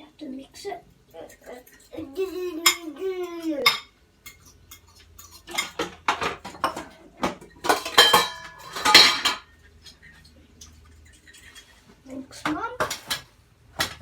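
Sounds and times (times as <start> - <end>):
fork beating eggs in a bowl: 1.1 - 7.7.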